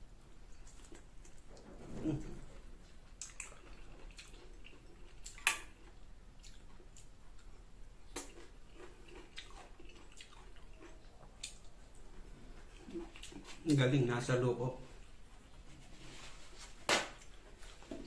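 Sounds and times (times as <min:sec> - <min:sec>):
chewing mango: 0:00.1 - 0:16.0
wet mouth clicks and smacks: 0:03.2 - 0:04.5, 0:09.4 - 0:11.7.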